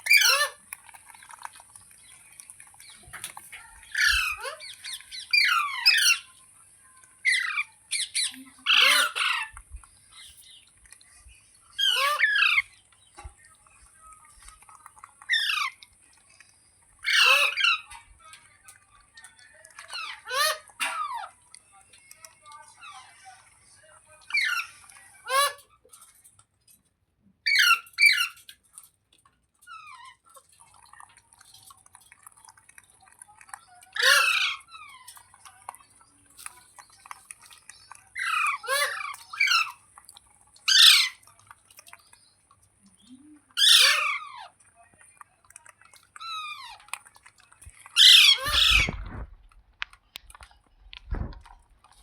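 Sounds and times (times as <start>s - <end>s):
parrot chirps: 0.0s - 0.6s, 3.8s - 6.3s, 7.2s - 10.6s, 11.7s - 12.8s, 15.2s - 15.8s, 17.0s - 18.0s, 19.8s - 21.4s, 24.2s - 25.8s, 27.4s - 28.6s, 33.6s - 35.2s, 37.7s - 39.8s, 40.6s - 41.2s, 43.5s - 44.5s, 47.9s - 49.3s
parrot squawking: 0.0s - 0.6s, 3.8s - 6.3s, 7.2s - 10.6s, 11.7s - 12.8s, 15.3s - 15.8s, 17.0s - 18.0s, 19.8s - 21.4s, 24.2s - 25.7s, 27.4s - 28.5s, 33.9s - 35.2s, 37.8s - 39.8s, 40.6s - 41.2s, 43.5s - 44.6s, 46.2s - 46.9s, 47.9s - 49.3s.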